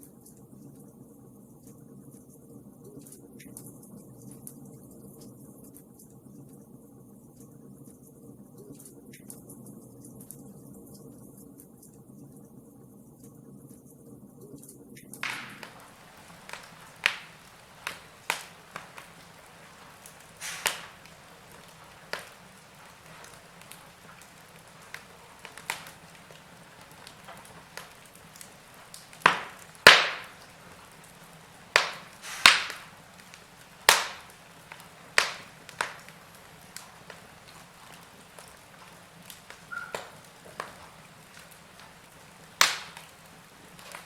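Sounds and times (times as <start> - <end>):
faint steady hiss: 0.0 - 44.0
wood fire crackling and popping: 3.0 - 6.7, 15.1 - 44.0.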